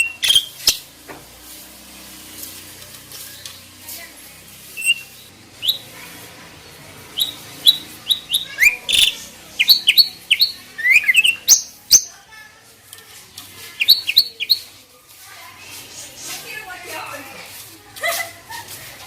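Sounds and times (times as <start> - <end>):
songbird chirping: 0.0 - 0.9, 4.6 - 12.3, 13.4 - 14.9.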